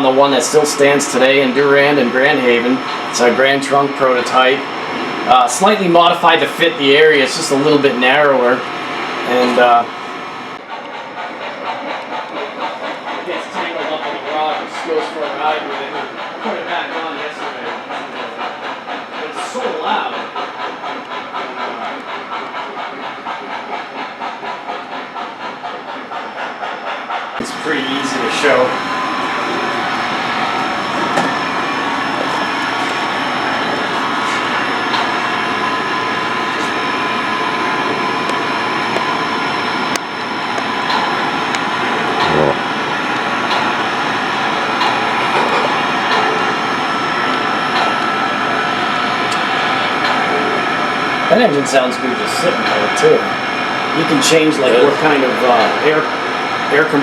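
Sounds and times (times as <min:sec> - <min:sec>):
simulated air compressor: 0:00.0 - 0:57.0
electronic steam locomotive hiss: 0:25.2 - 0:57.0.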